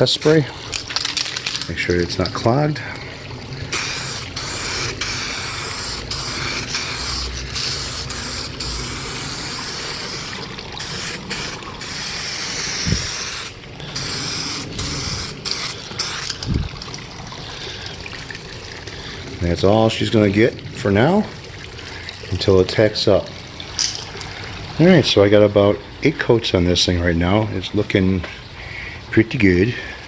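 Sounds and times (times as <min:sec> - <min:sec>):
aerosol can spraying hiss: 0:03.7 - 0:16.4.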